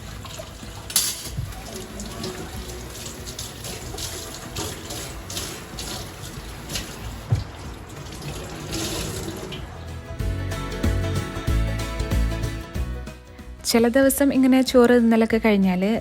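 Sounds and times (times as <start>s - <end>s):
tap running into sink: 0.0s - 9.7s
crockery and pans clattering: 0.7s - 9.7s.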